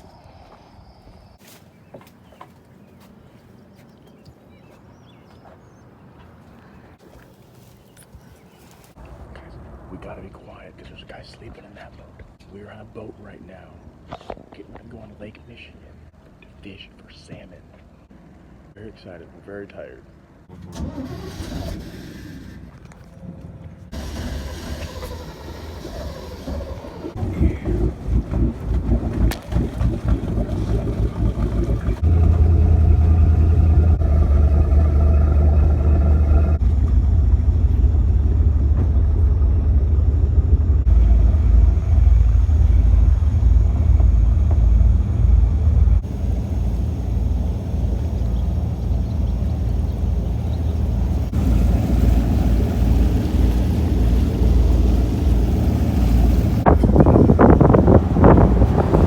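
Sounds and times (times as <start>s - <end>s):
motorboat engine humming: 22.4s - 59.0s
wind on microphone: 27.2s - 32.0s, 55.3s - 59.0s.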